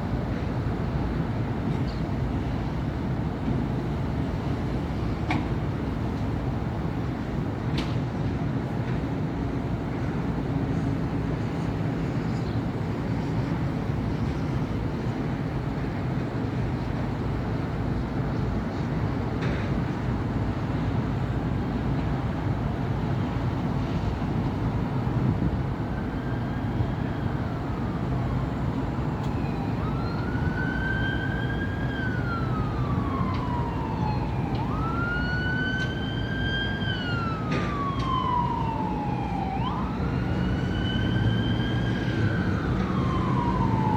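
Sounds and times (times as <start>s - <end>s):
city traffic rumble: 0.0s - 43.9s
emergency siren wailing: 23.2s - 43.9s.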